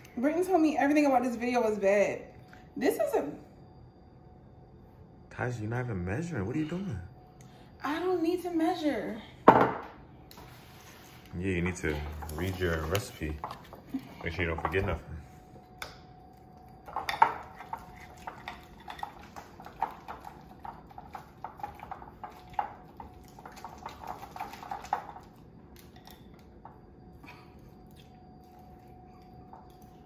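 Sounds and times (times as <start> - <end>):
faint steady hum: 0.0 - 30.0
utensils and bowl clattering: 11.7 - 15.0, 16.8 - 26.4.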